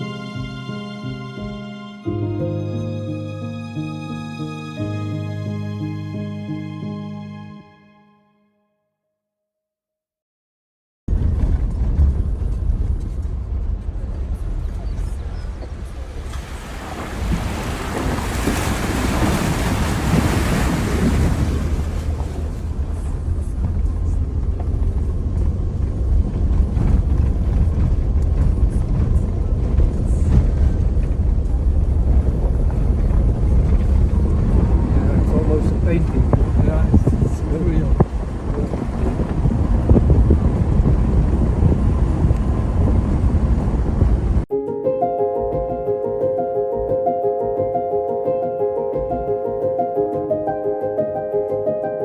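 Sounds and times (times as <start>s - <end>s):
low rumble: 11.1s - 18.3s, 19.1s - 44.5s
wind noise on microphone: 11.1s - 44.5s.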